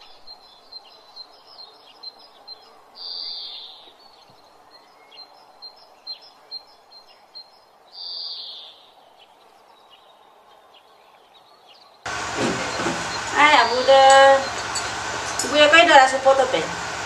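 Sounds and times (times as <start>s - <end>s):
birds chirping: 0.0s - 17.0s
high buzzy bird call: 10.8s - 17.0s.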